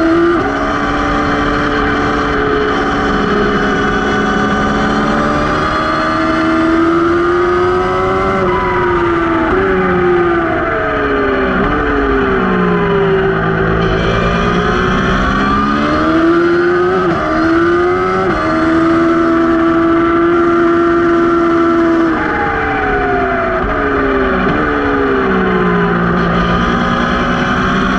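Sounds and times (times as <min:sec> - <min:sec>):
race motorcycle engine revving: 0:00.0 - 0:27.9.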